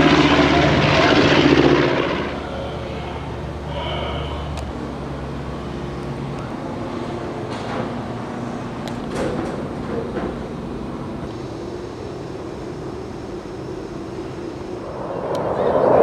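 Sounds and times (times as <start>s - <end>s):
propeller aircraft engine droning: 0.0s - 16.0s.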